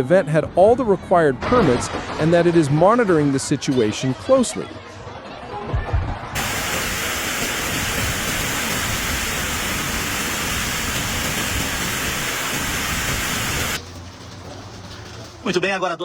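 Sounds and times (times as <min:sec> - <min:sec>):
heavy rain pouring: 0:06.4 - 0:13.8.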